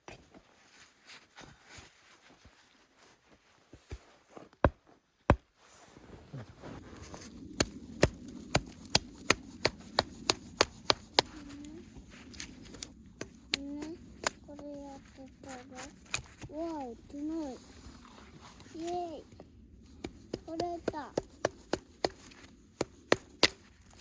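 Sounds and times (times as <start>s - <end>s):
hand tool striking: 20.0s - 23.8s.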